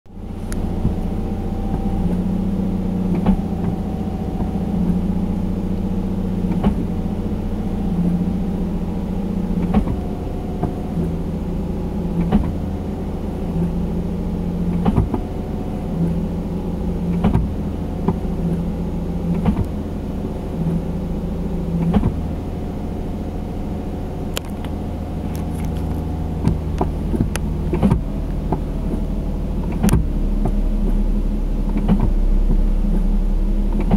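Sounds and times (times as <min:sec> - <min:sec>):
car engine idling: 0:00.1 - 0:33.9
clutch pedal click: 0:29.7 - 0:31.0.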